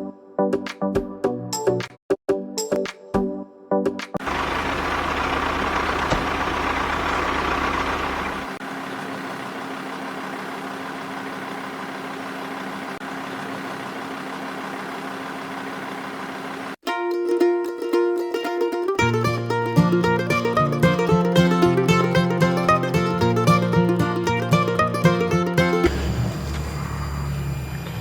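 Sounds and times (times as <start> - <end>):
engine running with low rumble: 4.2 - 16.8.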